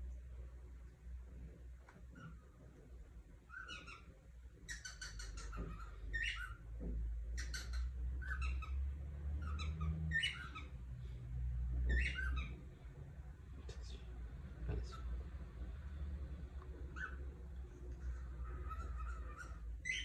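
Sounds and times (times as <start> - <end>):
low steady rumble: 0.0 - 20.0
cockatiel chirping: 3.4 - 6.6, 7.3 - 8.8, 9.4 - 10.8, 11.9 - 12.6, 16.8 - 17.4, 18.0 - 20.0.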